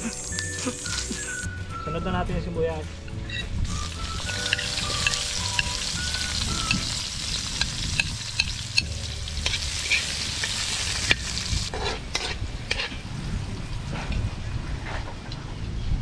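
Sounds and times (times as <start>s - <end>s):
onions sizzling in hot oil: 0.0s - 1.4s, 3.6s - 12.8s
spatula scraping a wok: 4.0s - 13.0s.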